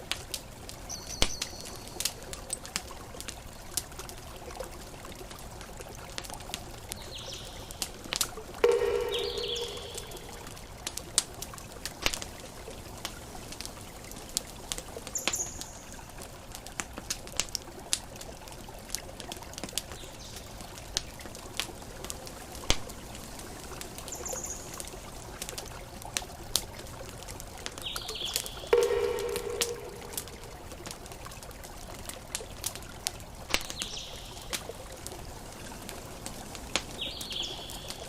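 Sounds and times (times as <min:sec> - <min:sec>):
campfire crackling: 0:00.0 - 0:38.0
brief high chirps: 0:08.6 - 0:10.4, 0:28.7 - 0:30.6.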